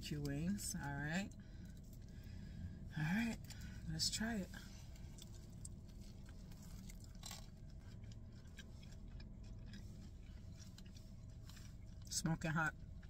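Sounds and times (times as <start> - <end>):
low steady hum: 0.0 - 13.0
chewing crunchy chicken wing: 4.7 - 13.0.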